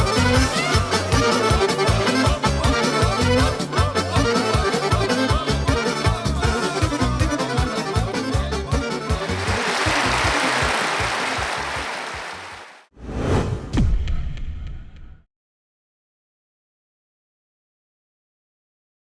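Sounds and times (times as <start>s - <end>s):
accordion melody: 0.0s - 12.6s.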